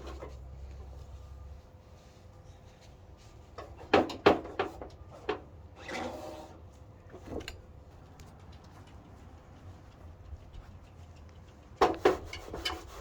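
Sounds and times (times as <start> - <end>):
scraping rub: 11.8 - 13.0.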